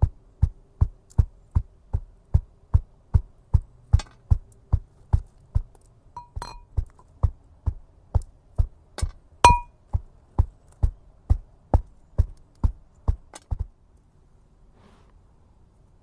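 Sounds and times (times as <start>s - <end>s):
sharp ringing knocks: 6.2s - 6.7s, 9.4s - 9.7s.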